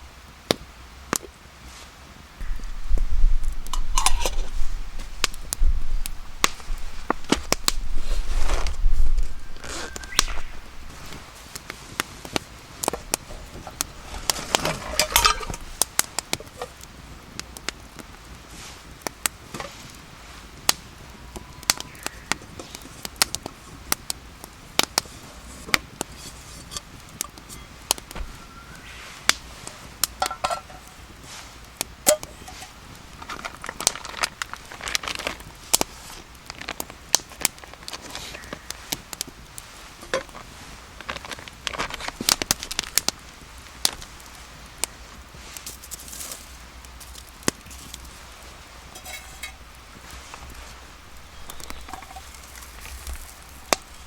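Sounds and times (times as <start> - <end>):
campfire crackling: 0.0 - 54.0
cooking gear clattering: 3.7 - 4.7, 13.2 - 15.7, 48.9 - 49.8, 51.5 - 53.9.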